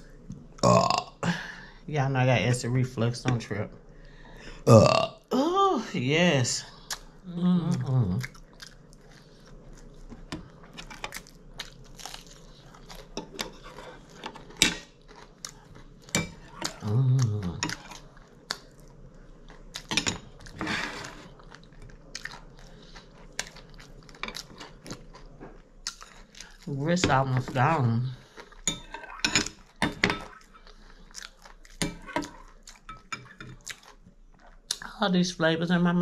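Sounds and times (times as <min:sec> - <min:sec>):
person chewing food: 0:06.8 - 0:26.8, 0:28.1 - 0:34.9.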